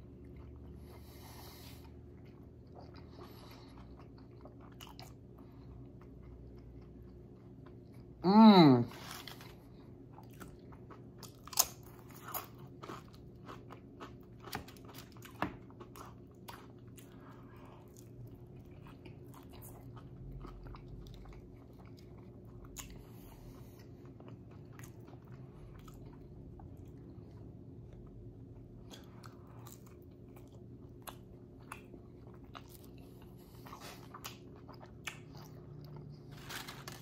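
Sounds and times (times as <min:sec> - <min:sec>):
chewing: 0:00.1 - 0:08.1, 0:09.1 - 0:37.0
crunching chips: 0:33.8 - 0:37.0.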